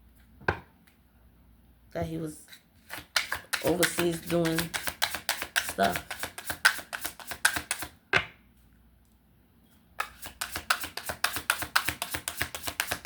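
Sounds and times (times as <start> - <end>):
cards being shuffled: 2.8 - 7.9, 10.0 - 13.0.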